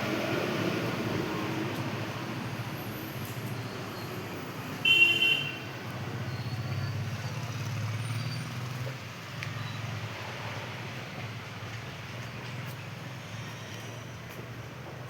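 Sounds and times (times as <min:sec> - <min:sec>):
road traffic rumble: 0:00.0 - 0:15.0
vehicle horn toot: 0:04.8 - 0:05.6.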